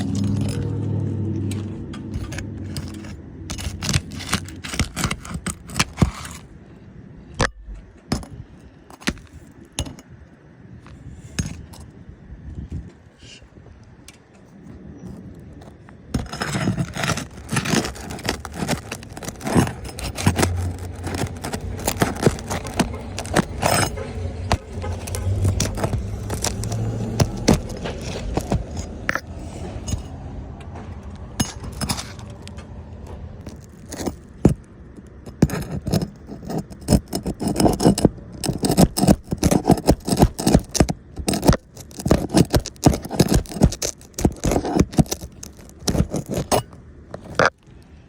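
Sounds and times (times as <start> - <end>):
low rumble: 0.0 - 5.0, 16.2 - 34.7
hand tools scraping and clinking: 0.0 - 6.6, 7.4 - 10.2, 10.8 - 11.9, 14.1 - 47.6.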